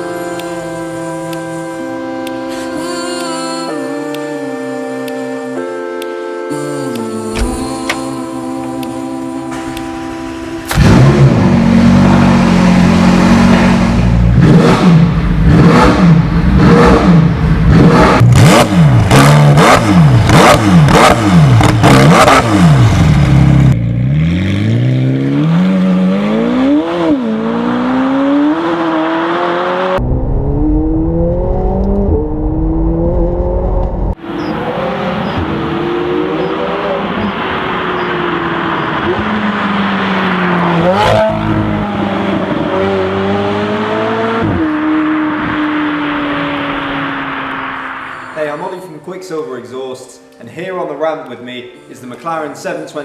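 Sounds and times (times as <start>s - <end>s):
sports car engine revving: 9.5s - 48.1s.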